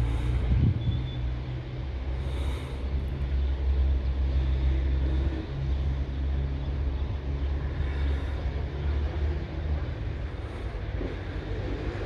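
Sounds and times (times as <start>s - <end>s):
electric locomotive rumble and hum: 0.0s - 12.0s.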